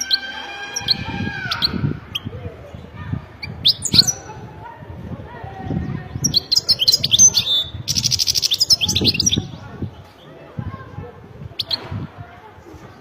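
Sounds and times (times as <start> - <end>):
low background murmur: 0.0 - 13.0
goldfinch twittering and trilling: 6.2 - 9.5.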